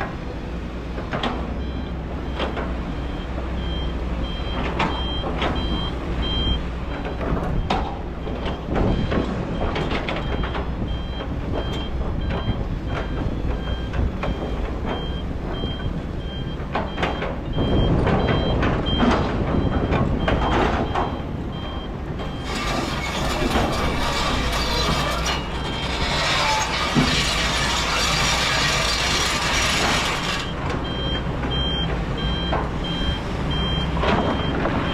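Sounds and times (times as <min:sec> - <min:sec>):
excavator diesel engine running: 0:00.0 - 0:34.9
backup alarm beeping: 0:01.6 - 0:06.7, 0:08.4 - 0:22.8, 0:25.2 - 0:26.4, 0:30.4 - 0:34.9
dense metallic rattling: 0:17.7 - 0:30.6
metal clanks: 0:22.2 - 0:30.6.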